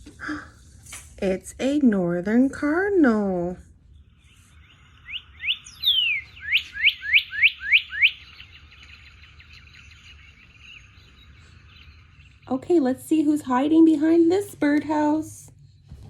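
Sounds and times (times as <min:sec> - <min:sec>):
faint bird calls: 0:04.3 - 0:12.5.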